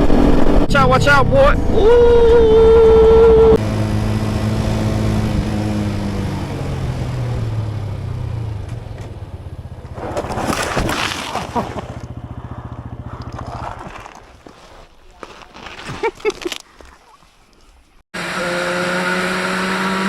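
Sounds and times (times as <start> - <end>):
motorcycle engine slowing: 1.6 - 16.1.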